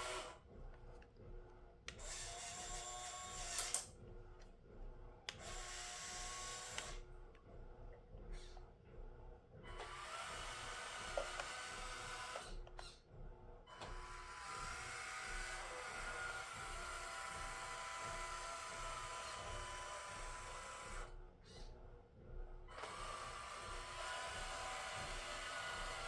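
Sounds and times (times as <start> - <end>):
toy truck electric motor whining: 0.0 - 0.4, 2.0 - 3.9, 14.0 - 21.1.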